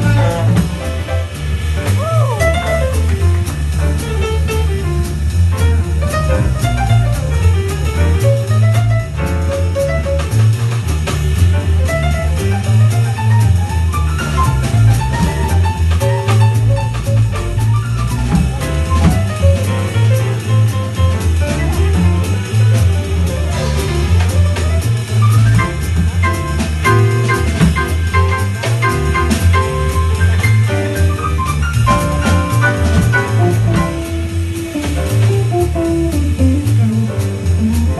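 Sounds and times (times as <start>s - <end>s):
bass line: 0.0s - 37.9s
drum kit with cymbals: 0.0s - 37.9s
guitar melody: 16.1s - 37.9s.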